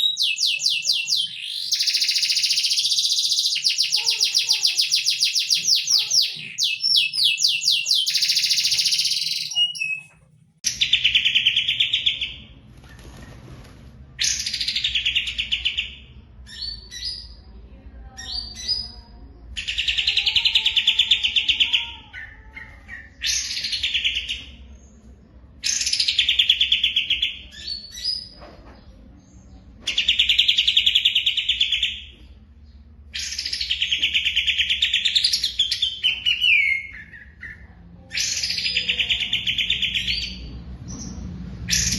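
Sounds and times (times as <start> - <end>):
songbird trilling: 0.0 - 10.1.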